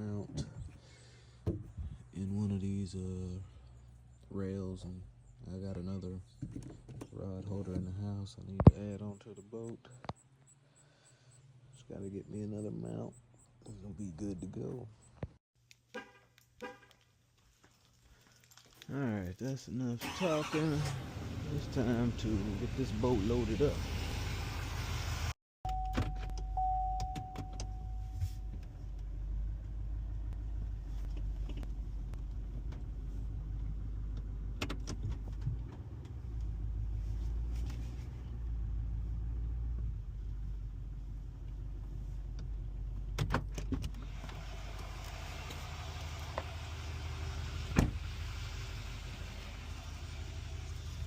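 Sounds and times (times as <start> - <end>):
short steady beep: 25.7 - 28.5.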